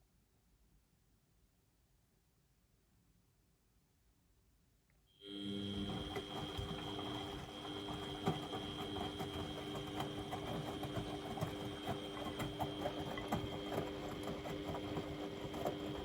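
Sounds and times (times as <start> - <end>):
washing machine motor hum: 5.2 - 16.0.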